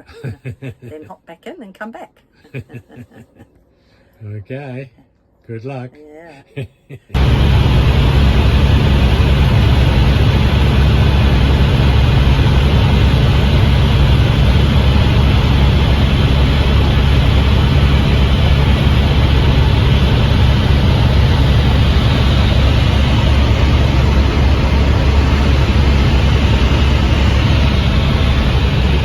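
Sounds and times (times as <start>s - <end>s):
helicopter rotor and engine: 7.2s - 29.0s.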